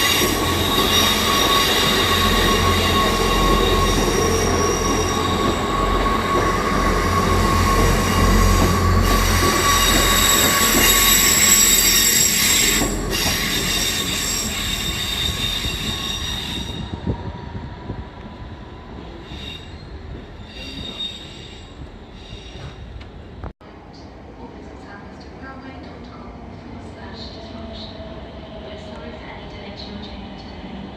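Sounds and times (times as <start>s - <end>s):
train wheel squeal: 0.0s - 17.8s, 18.6s - 23.2s
train rumble: 0.0s - 30.9s.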